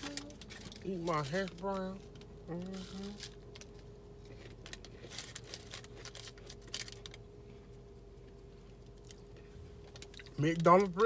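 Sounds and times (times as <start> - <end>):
faint chewing with crunches: 0.0 - 11.0
faint steady hum: 0.0 - 11.0.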